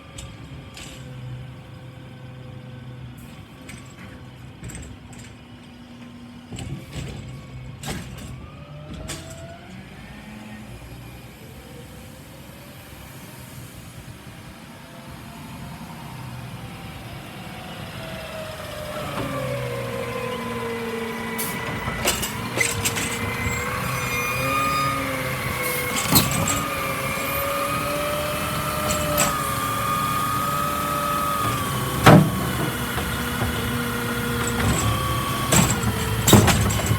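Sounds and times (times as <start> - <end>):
garbage truck engine rumble: 0.0 - 11.8, 13.4 - 36.9.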